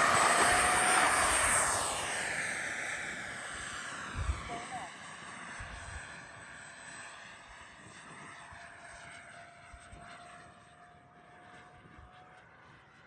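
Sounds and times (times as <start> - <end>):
electric ducted fan whine: 0.0 - 4.9
wind rumble on microphone: 2.9 - 4.8.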